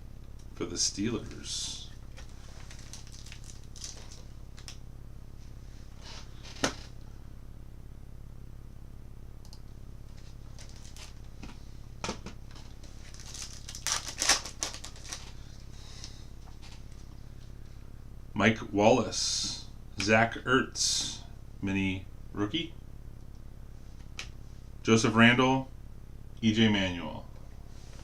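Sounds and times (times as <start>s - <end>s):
card wrapper crinkling and tearing: 2.1s - 4.8s, 10.5s - 11.2s, 12.8s - 15.4s.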